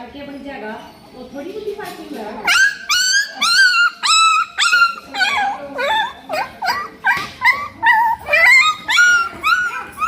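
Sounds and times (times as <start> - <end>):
puppy whimpering and yelping: 2.4 - 10.0.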